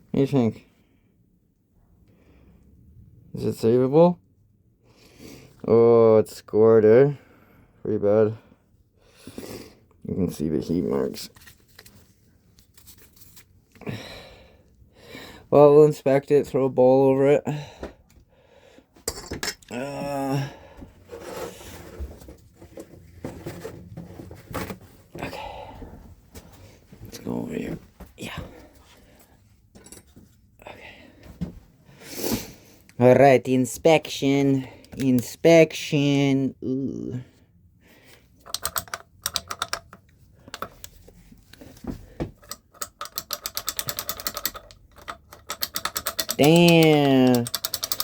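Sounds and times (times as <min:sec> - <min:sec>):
rubbing and rustling of tools: 0:11.1 - 0:13.8, 0:21.0 - 0:25.2, 0:38.1 - 0:48.0
sharp metallic ratchet clicks: 0:38.5 - 0:40.0, 0:42.4 - 0:48.0.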